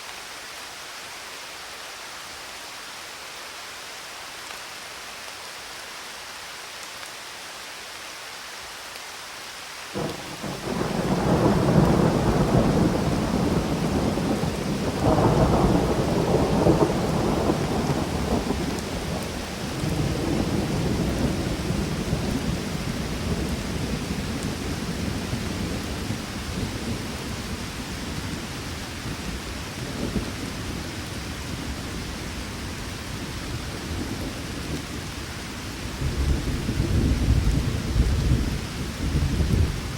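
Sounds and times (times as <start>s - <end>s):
steady rain falling: 0.0s - 39.9s
thunder rumbling: 10.0s - 28.5s, 36.0s - 39.9s.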